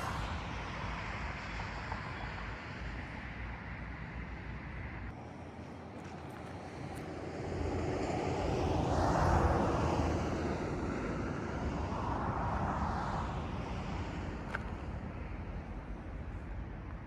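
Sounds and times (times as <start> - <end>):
freight train rumbling: 0.0 - 5.9.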